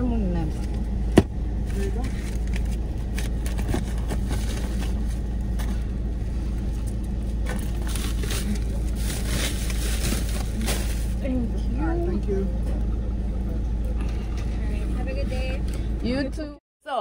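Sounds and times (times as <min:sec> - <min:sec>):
car engine idling: 0:00.0 - 0:16.6
plastic bags rustling: 0:07.3 - 0:11.5.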